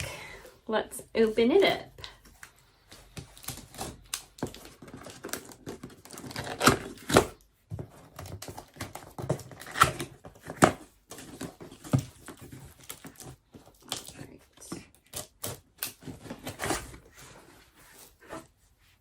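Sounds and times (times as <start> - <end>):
packaging crinkling and tearing: 3.0 - 7.4.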